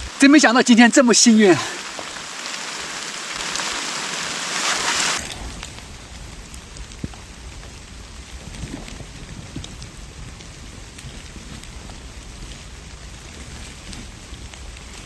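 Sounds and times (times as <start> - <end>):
rushing hiss: 0.0 - 8.4.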